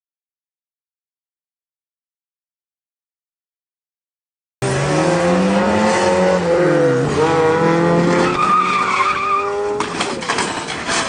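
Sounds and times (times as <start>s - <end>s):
car engine revving: 4.6s - 10.2s.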